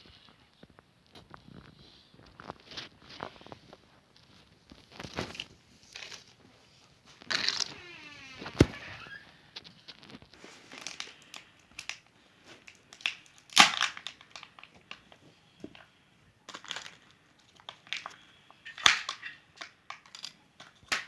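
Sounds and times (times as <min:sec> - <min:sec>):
foil wrapping crinkling and tearing: 0:04.2 - 0:06.4, 0:09.8 - 0:12.0, 0:12.6 - 0:15.0.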